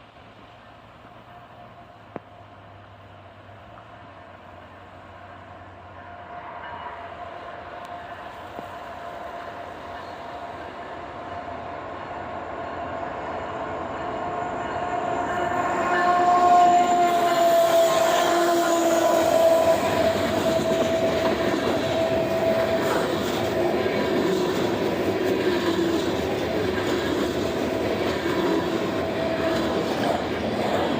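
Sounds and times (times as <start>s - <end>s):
train wheels rumbling and clattering: 0.0s - 30.9s
train horn chord: 14.5s - 27.0s.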